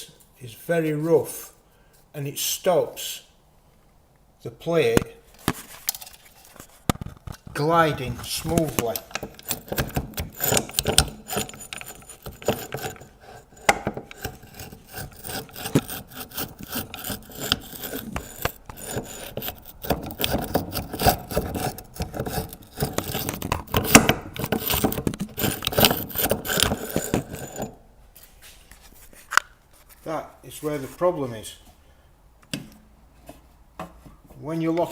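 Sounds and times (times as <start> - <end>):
metal scraping and grating: 7.5 - 27.8.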